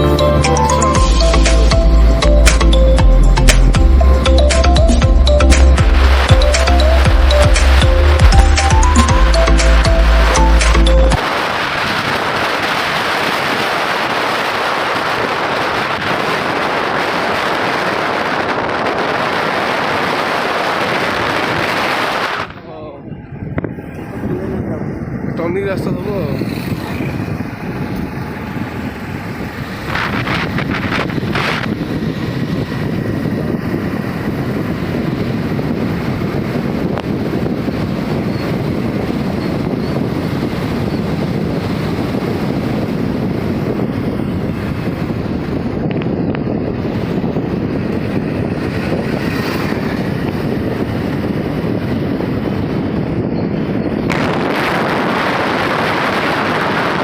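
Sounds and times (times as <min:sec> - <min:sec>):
heavy rain falling: 0:11.2 - 0:22.5
wind buffeting microphone: 0:11.2 - 0:57.0.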